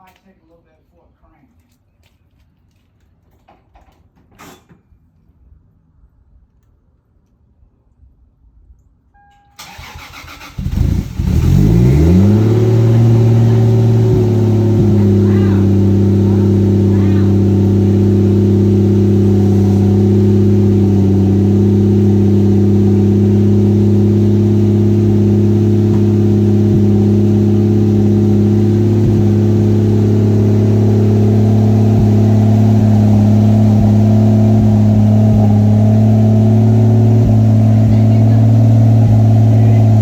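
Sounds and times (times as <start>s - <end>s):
car engine running: 9.7s - 40.0s.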